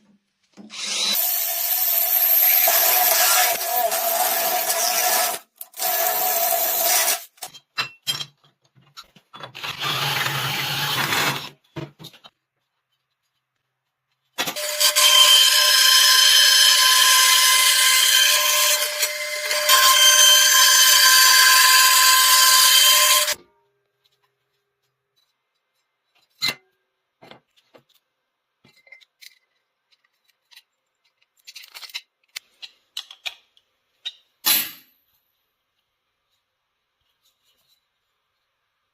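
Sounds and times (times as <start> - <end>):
power tool whining: 14.4 - 23.4
handling clicks scrapes and taps: 24.0 - 34.4.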